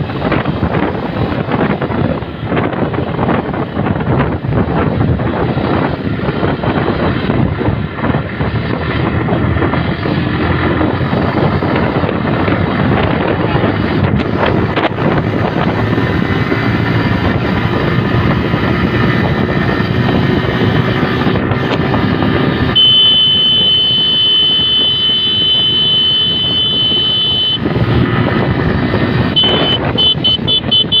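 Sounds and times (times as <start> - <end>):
motorcycle engine running: 0.0 - 31.0
wind noise on microphone: 0.0 - 31.0
high-pitched tone: 22.7 - 27.6, 29.3 - 31.0
quick beeps: 22.8 - 27.6, 29.4 - 31.0.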